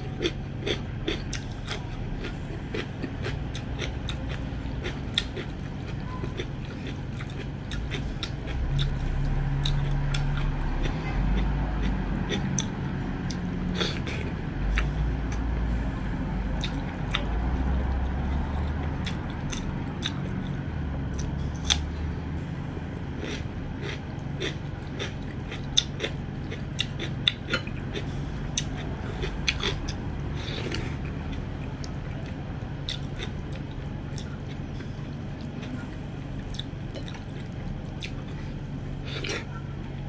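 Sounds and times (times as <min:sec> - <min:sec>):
person chewing with mouth clicks: 0:00.0 - 0:15.5, 0:16.6 - 0:21.9, 0:23.2 - 0:40.0
steady low hum: 0:00.0 - 0:40.0.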